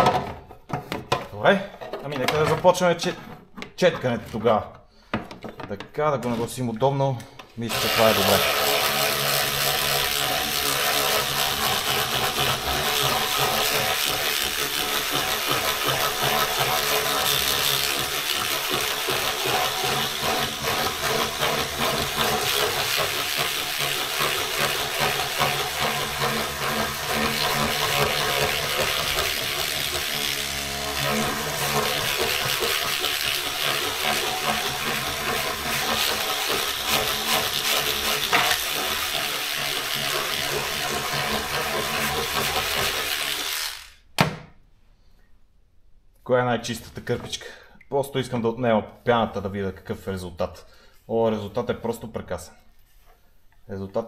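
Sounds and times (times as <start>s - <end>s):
electric scrub brush motor hum: 7.7s - 44.1s.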